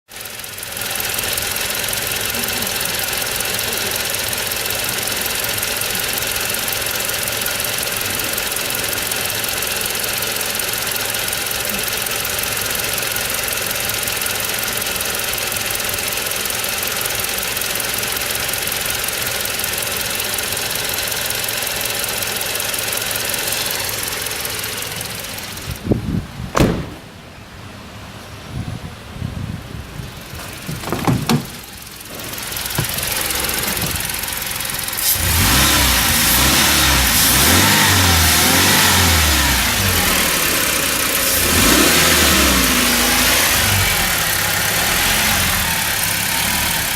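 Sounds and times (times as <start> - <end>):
engine running: 0.1 - 28.4, 29.0 - 46.9
sharp knocks: 26.5 - 27.2, 30.4 - 33.2.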